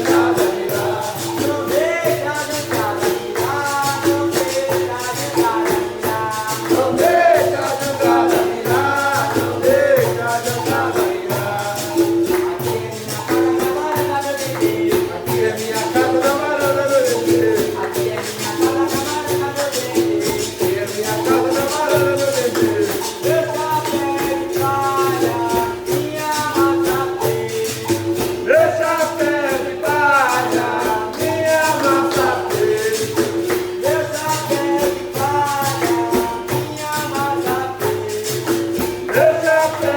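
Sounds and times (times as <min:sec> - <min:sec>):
percussion rhythm: 0:00.0 - 0:39.9
person singing: 0:00.0 - 0:39.9
tambourine jingling: 0:00.0 - 0:39.9.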